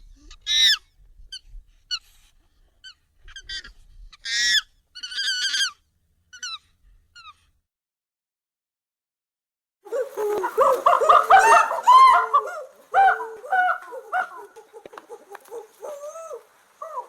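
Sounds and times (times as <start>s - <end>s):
high monkey squeaks and chirps: 0.2s - 2.1s, 2.8s - 7.5s
monkey honking calls: 9.9s - 17.0s.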